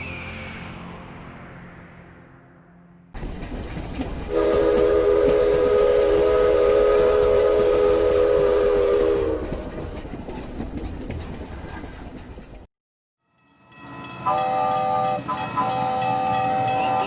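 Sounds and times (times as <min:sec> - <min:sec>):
moving train rumble and clatter: 0:03.1 - 0:12.7, 0:13.4 - 0:17.0
train whistle chord: 0:04.3 - 0:09.5, 0:14.2 - 0:17.0.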